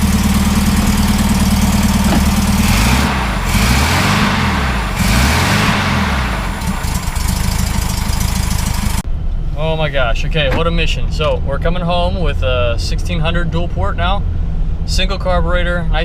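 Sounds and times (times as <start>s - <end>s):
engine idling and revving: 0.0s - 9.4s.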